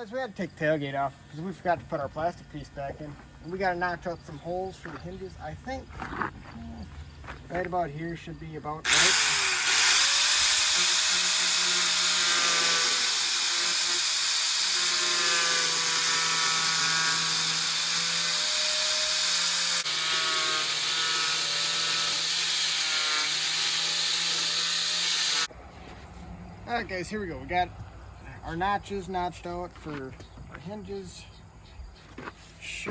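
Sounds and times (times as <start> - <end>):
angle grinder cutting sheet metal: 8.9 - 25.5.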